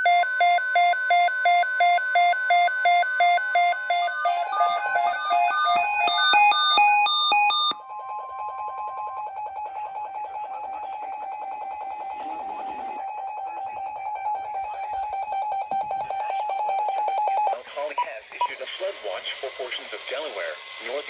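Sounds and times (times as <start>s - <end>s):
stepped electronic tone melody: 0.0s - 17.3s
pulsing electronic alert tone: 2.6s - 7.8s.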